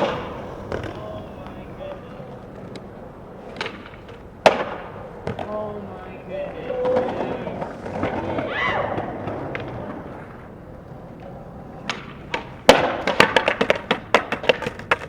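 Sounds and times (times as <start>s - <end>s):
loud skateboard slam: 0.0s - 1.8s, 3.4s - 5.6s, 6.7s - 10.4s, 11.8s - 15.0s
skateboard rolling on concrete: 0.0s - 15.0s.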